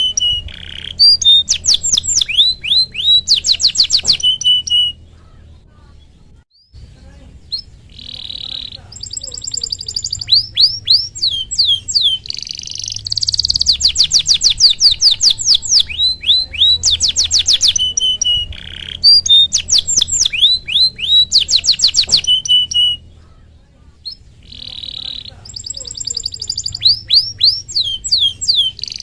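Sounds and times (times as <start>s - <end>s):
canary singing: 0.0s - 29.0s.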